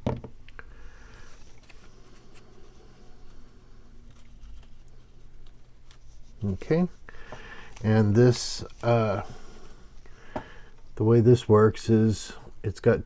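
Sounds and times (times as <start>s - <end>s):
low steady hum: 0.0s - 13.0s
paper rustling: 1.1s - 10.1s.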